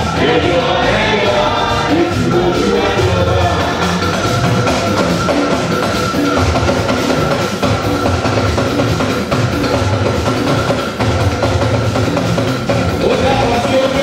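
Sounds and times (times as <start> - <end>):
church music with singing: 0.0 - 9.5
steady drum beat: 0.0 - 14.0.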